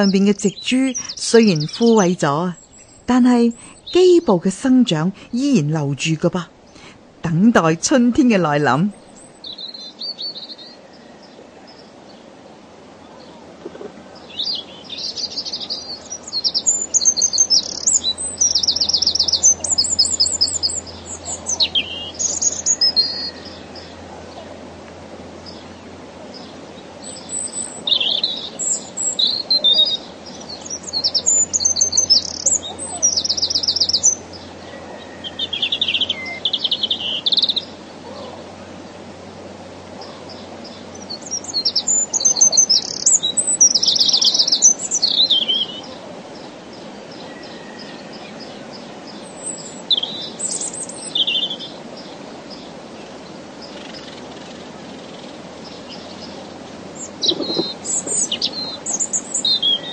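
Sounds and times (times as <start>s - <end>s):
songbird trilling: 0.0s - 10.9s, 14.2s - 24.6s, 27.0s - 38.4s, 40.0s - 46.0s, 57.0s - 59.9s
faint background hiss: 0.0s - 59.9s.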